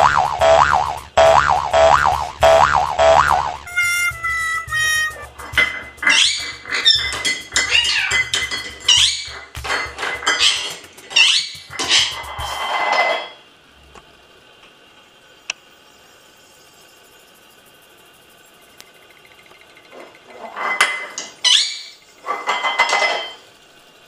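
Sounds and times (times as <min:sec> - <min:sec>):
parrot squawking and chirping: 0:03.3 - 0:09.4, 0:10.3 - 0:12.7, 0:21.4 - 0:22.0
metal bowl clinking: 0:05.2 - 0:10.8.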